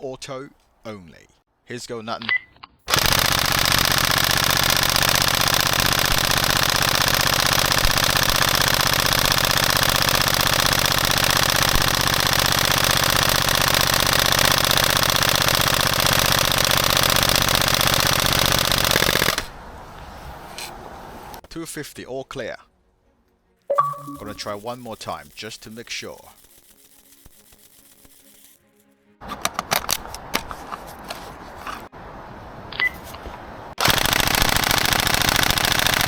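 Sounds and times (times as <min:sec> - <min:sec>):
airsoft rifle full-auto burst: 0:02.9 - 0:19.5, 0:24.5 - 0:28.6, 0:33.8 - 0:36.0.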